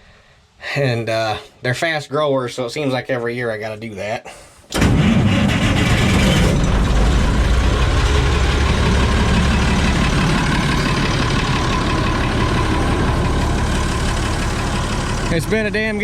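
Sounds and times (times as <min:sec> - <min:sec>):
combine engine running: 0:04.8 - 0:16.0.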